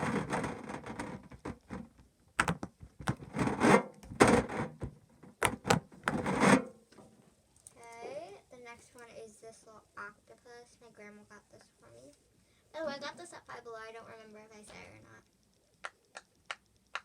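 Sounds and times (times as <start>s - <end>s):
scratchy noise: 0.0s - 1.8s, 3.1s - 4.9s, 5.6s - 6.7s.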